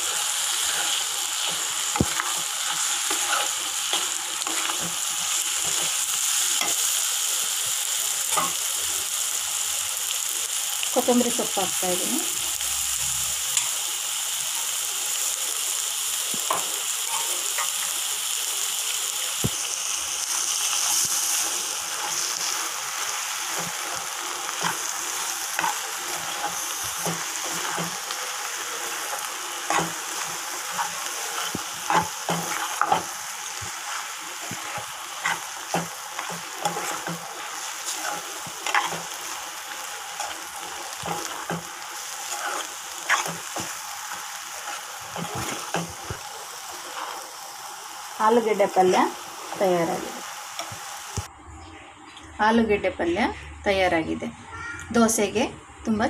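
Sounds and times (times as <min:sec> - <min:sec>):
vegetables sizzling in a pan: 0:00.0 - 0:51.3
steel spoon scraping a pan: 0:00.1 - 0:06.9, 0:16.5 - 0:17.9, 0:20.6 - 0:43.8, 0:44.5 - 0:47.3.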